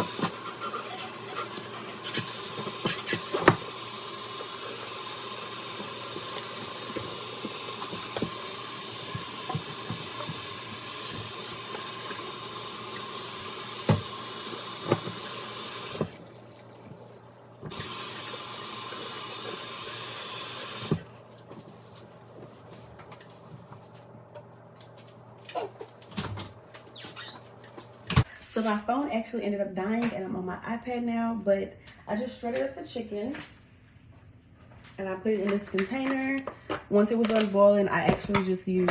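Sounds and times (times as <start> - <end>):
tap running into sink: 2.2 - 3.8, 5.7 - 12.3, 13.7 - 16.2.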